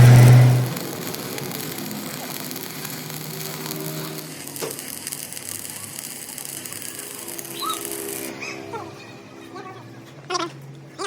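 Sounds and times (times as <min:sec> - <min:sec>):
arc welding crackling hiss: 0:00.0 - 0:08.4.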